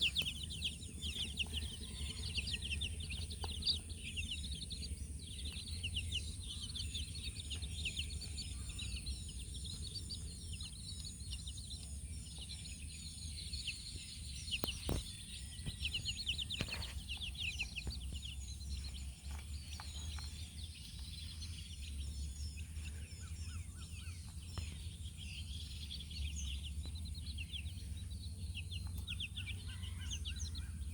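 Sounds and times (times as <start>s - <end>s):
steady low hum: 0.0s - 19.0s
baby chicks peeping: 0.0s - 30.9s.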